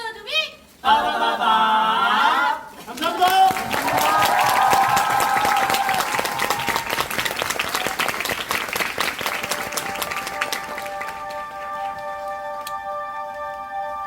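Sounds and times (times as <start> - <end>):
audience applauding: 2.9 - 12.0
sustained music notes: 9.3 - 14.0.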